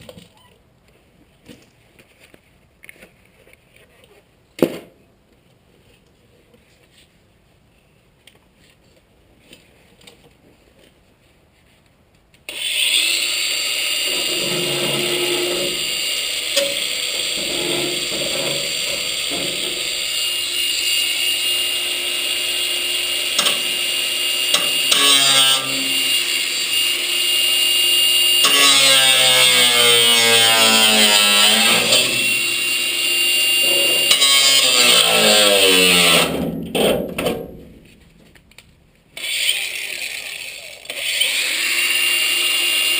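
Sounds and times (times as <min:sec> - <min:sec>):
power tool whining: 0:12.5 - 0:36.9, 0:39.2 - 0:42.9.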